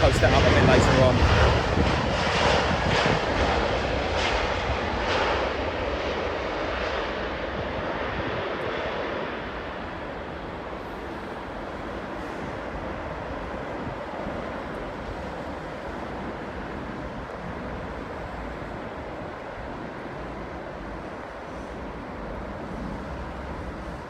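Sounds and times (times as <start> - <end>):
jet engine noise: 0.0 - 24.0.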